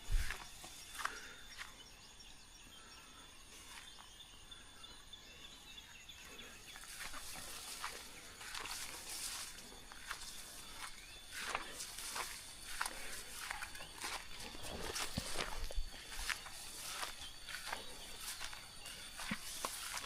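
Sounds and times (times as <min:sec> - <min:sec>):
footsteps scuffing on a path: 0:00.0 - 0:01.7, 0:06.8 - 0:20.0
small birds chirping: 0:00.0 - 0:20.0.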